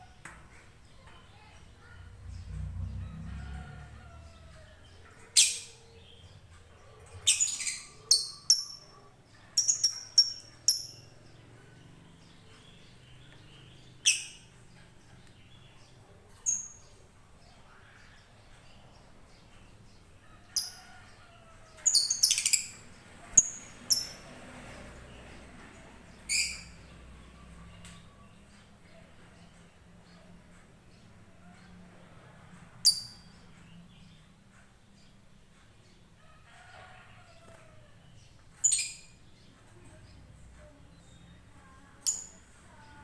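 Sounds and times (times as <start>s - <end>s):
lovebird chirping: 7.2s - 8.9s, 9.5s - 11.2s, 14.0s - 14.5s, 16.4s - 16.9s, 21.9s - 22.8s.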